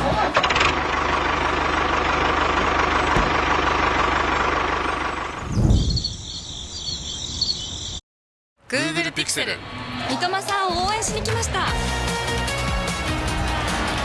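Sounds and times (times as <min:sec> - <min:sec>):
engine chugging: 0:00.0 - 0:05.6.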